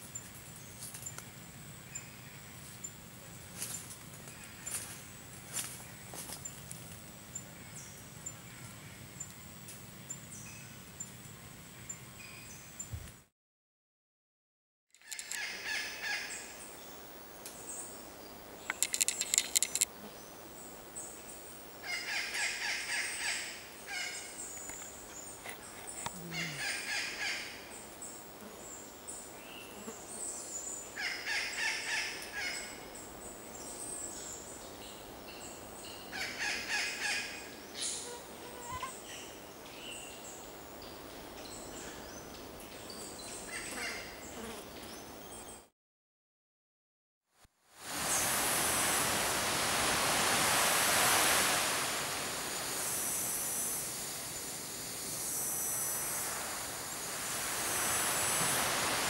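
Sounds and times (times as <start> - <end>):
forest birds calling: 15.0 - 45.7
fast rattle of sharp clicks: 18.7 - 19.9.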